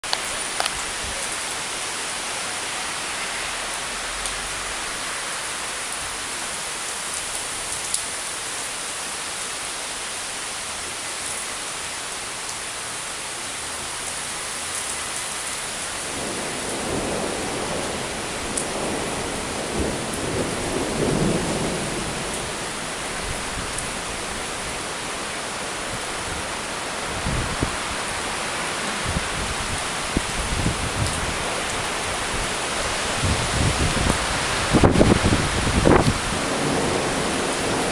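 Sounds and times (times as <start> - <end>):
steady rain: 0.0 - 37.9
thunder rumbling: 16.1 - 24.8, 29.0 - 37.9.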